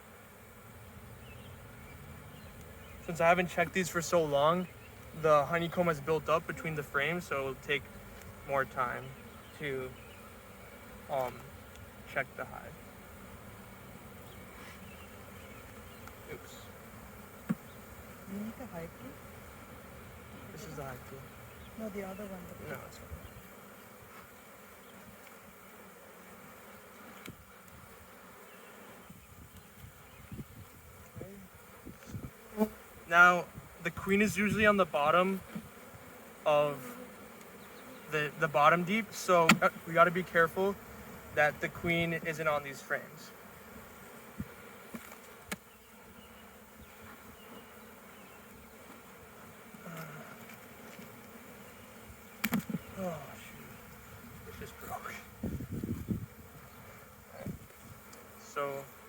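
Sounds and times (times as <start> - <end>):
honeybees buzzing: 0.0 - 59.0
sharp click: 52.4 - 52.7.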